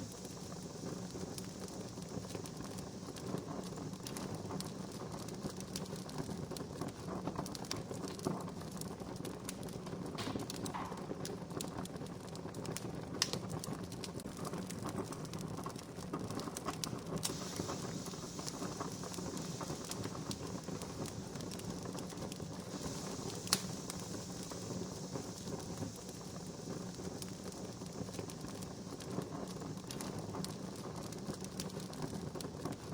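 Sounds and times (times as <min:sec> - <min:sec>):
soft hiss: 0:00.0 - 0:06.6, 0:16.6 - 0:32.9
wood fire crackling: 0:00.0 - 0:32.9.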